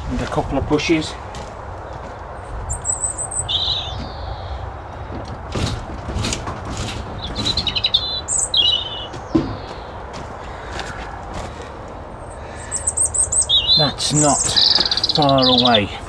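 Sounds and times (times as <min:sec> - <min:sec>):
small songbird chirping: 0:01.9 - 0:04.8, 0:07.2 - 0:10.1, 0:12.2 - 0:16.0
sharp knocks or taps: 0:09.1 - 0:10.2.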